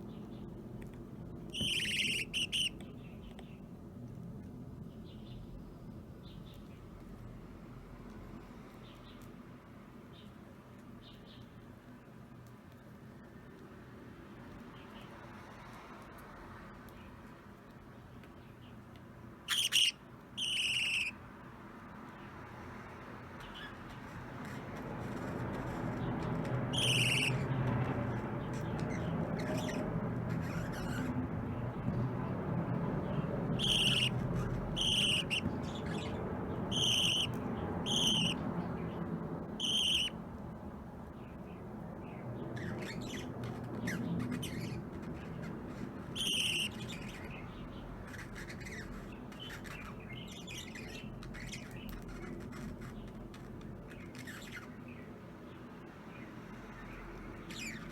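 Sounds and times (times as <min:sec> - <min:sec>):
low background noise: 0:00.0 - 0:57.9
budgerigars chirping: 0:01.6 - 0:02.8, 0:19.5 - 0:21.2, 0:23.4 - 0:31.1, 0:33.5 - 0:38.4, 0:39.6 - 0:40.2, 0:42.6 - 0:54.8, 0:56.8 - 0:57.9.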